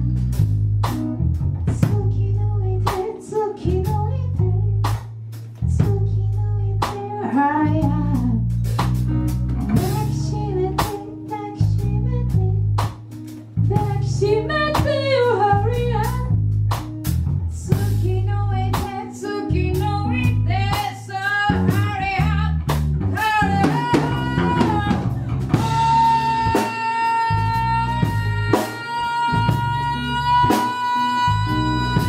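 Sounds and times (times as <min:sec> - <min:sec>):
bass: 0:00.0 - 0:32.0
drum kit: 0:00.0 - 0:32.0
guitar: 0:00.0 - 0:32.0
bending lead melody: 0:05.7 - 0:32.0.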